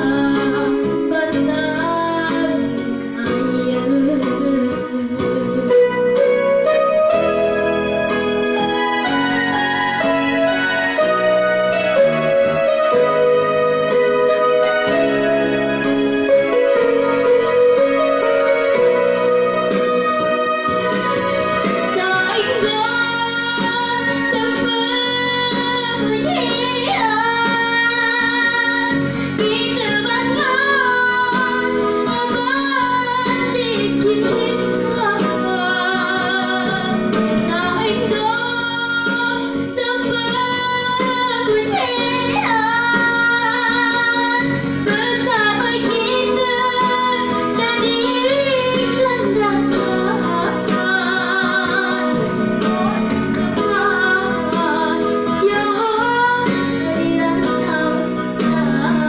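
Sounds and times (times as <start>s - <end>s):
girl singing: 0.0s - 6.3s, 21.9s - 59.0s
instrumental backing music: 0.0s - 59.0s.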